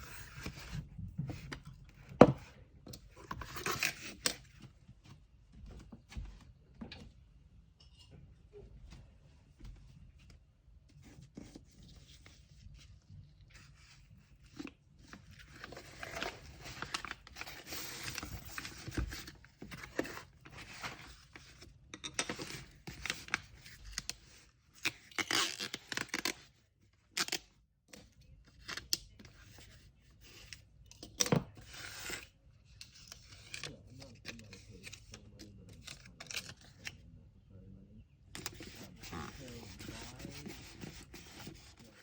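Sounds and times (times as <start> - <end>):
paper rustling and tearing: 15.4 - 21.3, 38.4 - 42.0.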